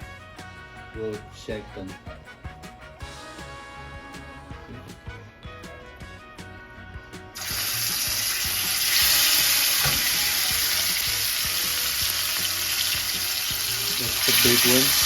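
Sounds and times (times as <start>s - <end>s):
steaks sizzling in a pan: 7.4s - 15.0s.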